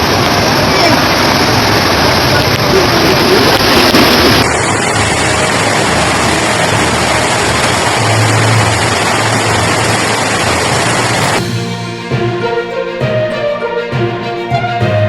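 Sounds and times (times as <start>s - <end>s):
low hum: 0.0s - 12.0s
floodwater rushing: 0.0s - 15.0s.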